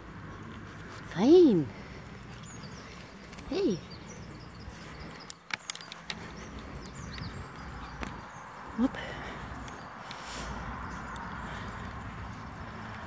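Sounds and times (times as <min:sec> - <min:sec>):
small birds chirping: 0:00.0 - 0:13.0
person calling hey: 0:03.5 - 0:03.9
sharp clicks: 0:05.2 - 0:08.2.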